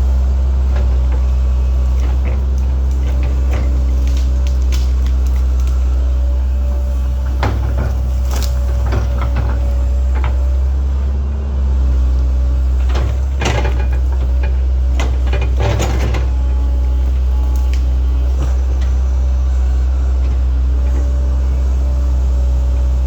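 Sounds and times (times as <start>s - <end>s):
excavator diesel engine running: 0.0s - 23.0s
machine knocks and scrapes: 7.2s - 10.6s.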